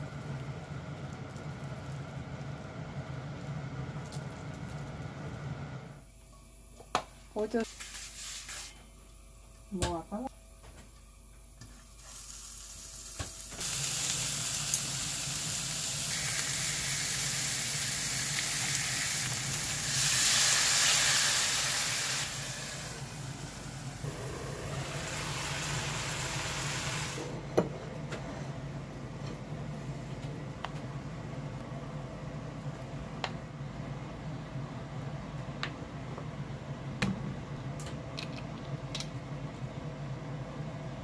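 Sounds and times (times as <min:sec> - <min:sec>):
food sizzling in frying pan: 0:11.9 - 0:27.3.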